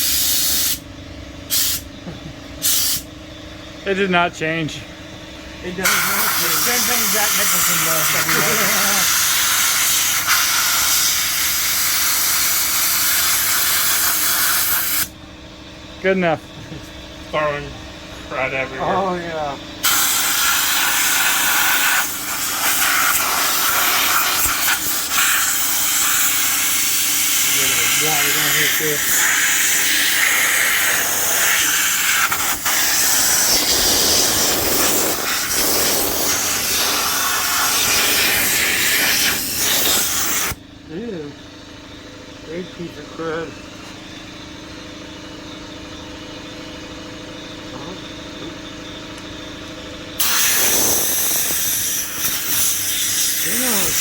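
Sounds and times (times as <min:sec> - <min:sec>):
air blow gun hissing: 0:00.0 - 0:00.8, 0:01.5 - 0:01.9, 0:02.6 - 0:03.1, 0:05.8 - 0:15.1, 0:19.8 - 0:40.6, 0:50.2 - 0:54.0.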